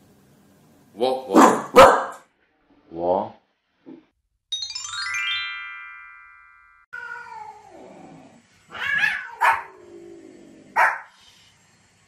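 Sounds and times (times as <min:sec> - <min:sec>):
dog yapping: 0:01.3 - 0:02.2, 0:08.7 - 0:09.8, 0:10.8 - 0:11.1
chime ringing: 0:04.5 - 0:06.9
cats meowing: 0:07.0 - 0:10.4.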